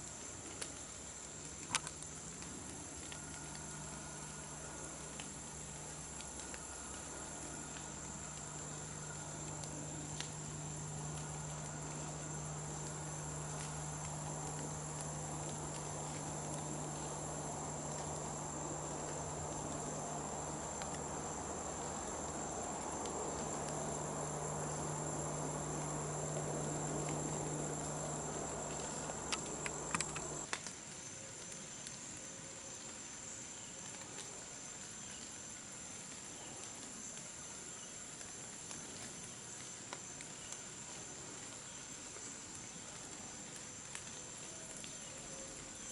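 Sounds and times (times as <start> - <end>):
insects calling: 0.0 - 45.9
rushing noise with low hum: 1.1 - 30.5
sharp clicks: 22.7 - 30.5.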